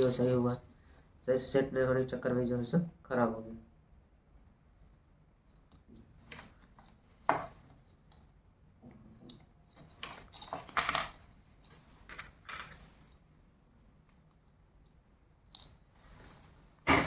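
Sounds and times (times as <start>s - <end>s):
clicks and clinks of handled parts: 9.2s - 12.9s, 14.1s - 15.9s.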